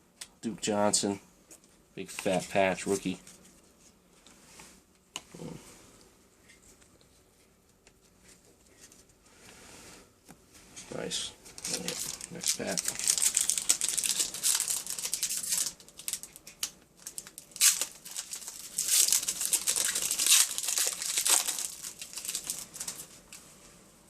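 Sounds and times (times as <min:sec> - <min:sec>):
wrapper crinkling: 0:11.5 - 0:23.4
wrapper ripping: 0:11.6 - 0:23.2.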